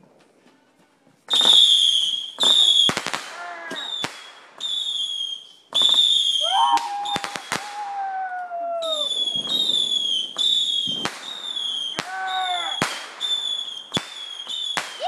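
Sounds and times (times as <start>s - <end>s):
fireworks bangs and crackling: 0.0s - 15.0s
fireworks whistles: 1.3s - 8.0s, 8.8s - 15.0s
lower whistle sliding downward: 5.8s - 11.8s.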